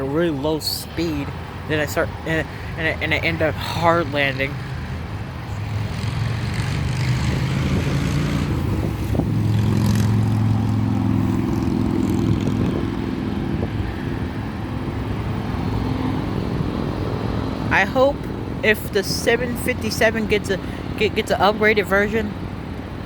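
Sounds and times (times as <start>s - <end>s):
jet engines humming: 0.0s - 23.0s.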